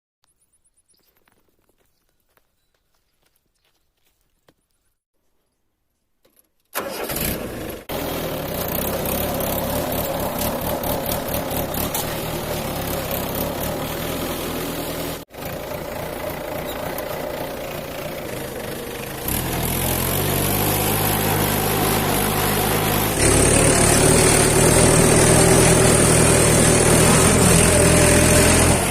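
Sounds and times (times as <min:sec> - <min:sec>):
tractor diesel engine running: 0:06.7 - 0:28.9.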